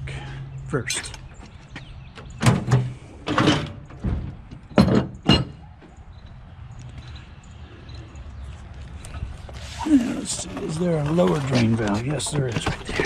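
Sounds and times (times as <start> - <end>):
metal tank knocks and bumps: 2.4 - 5.7
tank scraping slide: 9.4 - 13.0.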